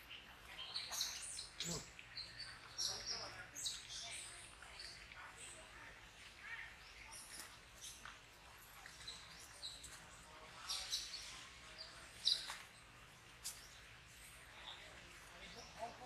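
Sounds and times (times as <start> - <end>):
animal chirps and squeaks: 0.6 - 5.0, 12.1 - 12.7.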